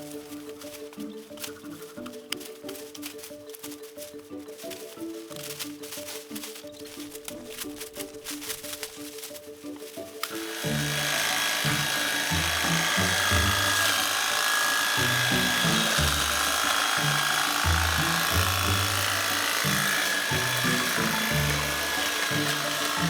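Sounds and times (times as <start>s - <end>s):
hedge trimmer running: 10.2s - 23.0s.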